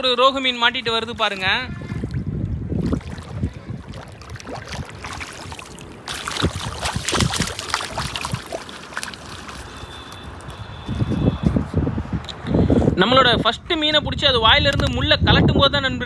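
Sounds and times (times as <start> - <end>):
water splashing and sloshing: 0.0 - 12.2.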